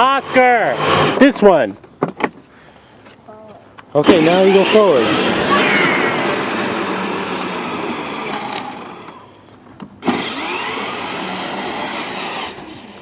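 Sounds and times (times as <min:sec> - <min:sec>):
toy car electric motor humming: 0:04.1 - 0:09.4, 0:10.0 - 0:13.0
wheels rolling: 0:04.1 - 0:13.0.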